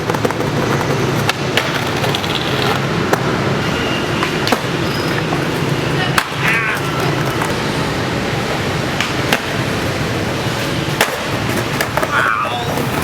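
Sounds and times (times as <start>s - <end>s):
skateboard wheels clacking on cracks: 0.0s - 3.4s, 4.2s - 7.7s, 9.0s - 13.0s
skateboard wheels rolling: 0.0s - 13.0s.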